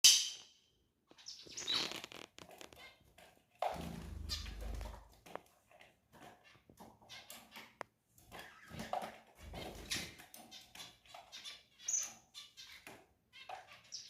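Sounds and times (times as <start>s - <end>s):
birds fluttering and scuffling: 1.4s - 10.9s.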